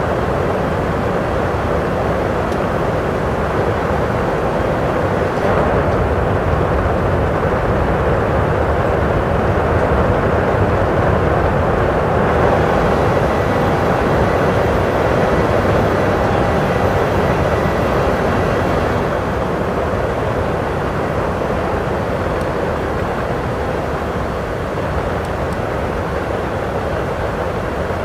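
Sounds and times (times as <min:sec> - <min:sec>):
airplane cabin engine noise: 0:00.0 - 0:28.0
faint steady whine: 0:10.8 - 0:28.0.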